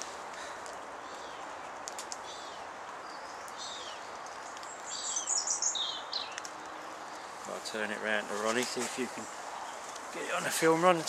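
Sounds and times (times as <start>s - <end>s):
outdoor background hiss: 0.0s - 11.0s
small bird chirping: 2.2s - 7.3s.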